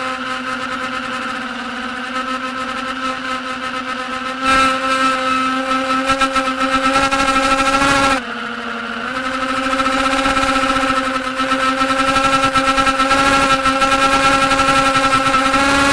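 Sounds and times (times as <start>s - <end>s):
quadcopter motors whining: 0.0s - 15.9s.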